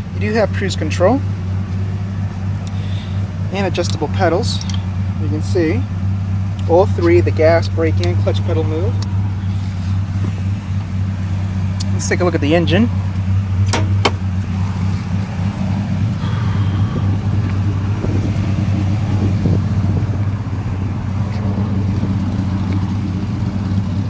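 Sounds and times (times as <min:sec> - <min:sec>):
truck engine idling: 0:00.0 - 0:24.0
sharp clicks: 0:04.6 - 0:04.9.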